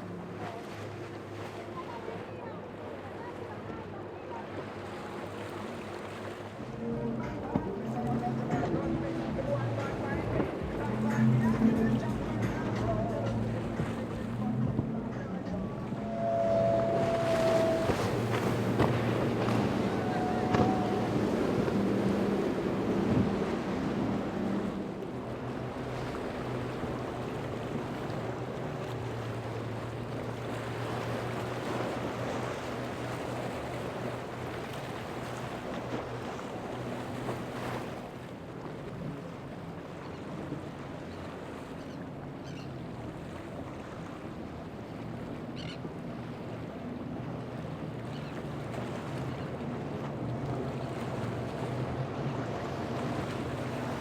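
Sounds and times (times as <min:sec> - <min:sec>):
boat engine running: 0:00.0 - 0:54.0
waves washing: 0:00.0 - 0:54.0
wind buffeting microphone: 0:14.6 - 0:24.6.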